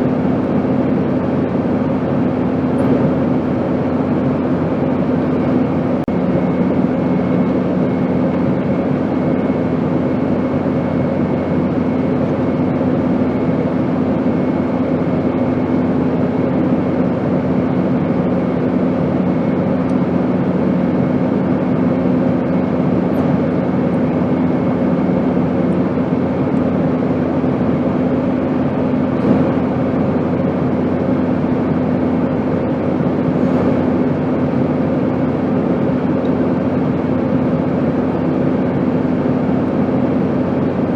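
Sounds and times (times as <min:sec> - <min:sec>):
airplane drone: 0:00.0 - 0:40.9.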